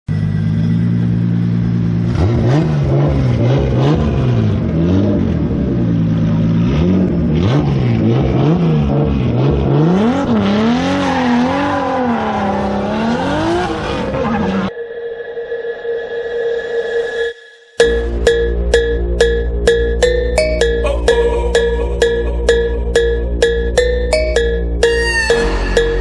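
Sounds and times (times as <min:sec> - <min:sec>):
car engine revving: 0:00.2 - 0:14.7.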